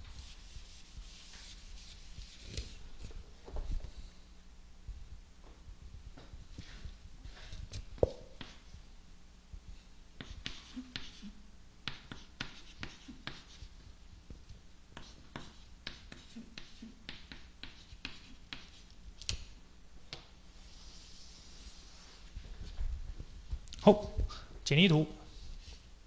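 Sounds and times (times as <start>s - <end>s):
pen scratching while writing: 10.2s - 13.7s, 15.0s - 18.9s.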